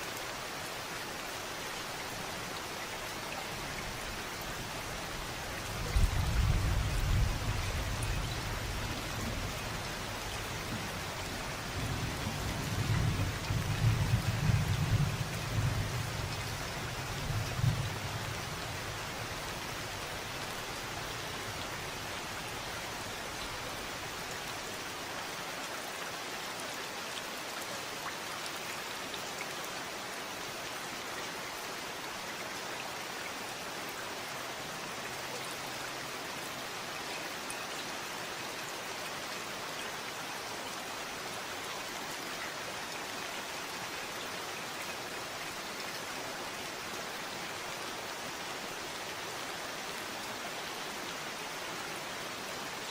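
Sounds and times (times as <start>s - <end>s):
steady rain falling: 0.0s - 52.9s
low rumble of thunder: 5.8s - 9.8s, 10.5s - 16.4s.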